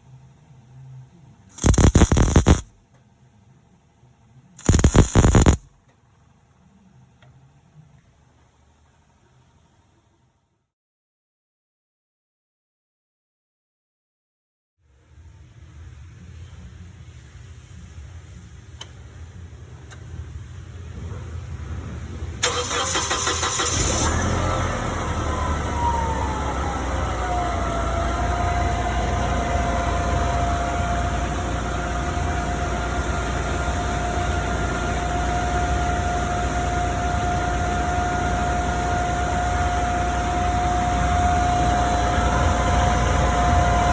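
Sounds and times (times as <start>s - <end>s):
engine whine: 1.5s - 2.8s, 4.6s - 5.7s, 21.6s - 43.9s
forklift engine idling: 22.4s - 43.9s.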